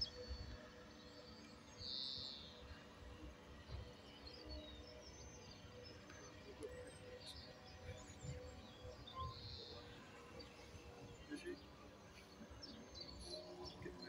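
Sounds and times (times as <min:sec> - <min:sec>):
faint bird chirps: 0:06.1 - 0:14.0.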